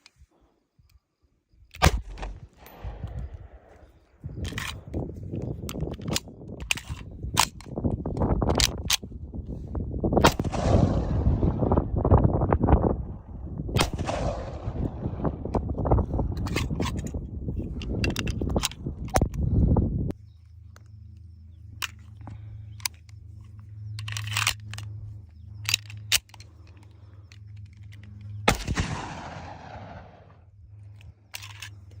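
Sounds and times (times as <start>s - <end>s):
steady low hum: 0.0s - 32.0s
sharp clicks: 1.7s - 9.1s, 13.8s - 19.4s, 20.1s - 32.0s
pistol shots: 1.8s - 3.7s, 10.2s - 11.6s, 13.8s - 15.5s, 28.5s - 30.5s.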